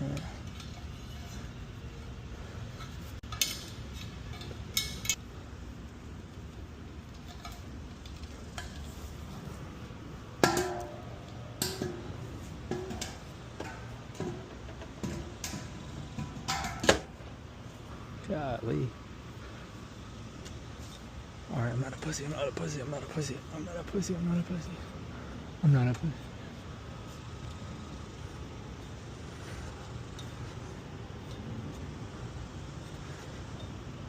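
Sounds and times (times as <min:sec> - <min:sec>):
metallic clinks and clanks: 0:00.0 - 0:01.8, 0:02.7 - 0:05.2, 0:07.0 - 0:09.1
steady low hum: 0:00.0 - 0:34.0.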